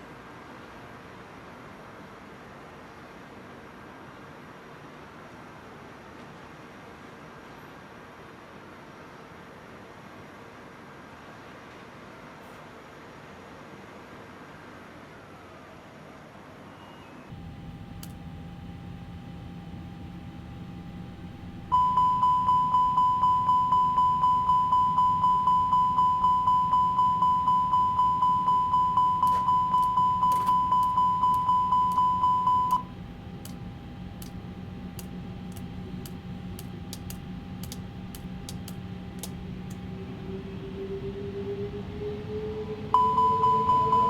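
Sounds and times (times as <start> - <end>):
faint rising tone: 17.3 - 35.2, 37.3 - 44.0
steady low hum: 17.3 - 44.0
rapid high electronic beeping: 21.7 - 32.9.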